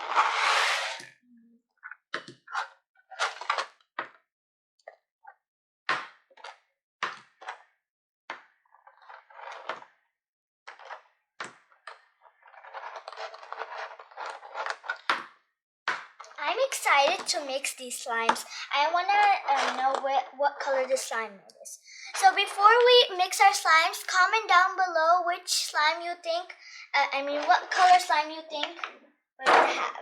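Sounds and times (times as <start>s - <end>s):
rustling and crackling handling: 12.4s - 15.1s.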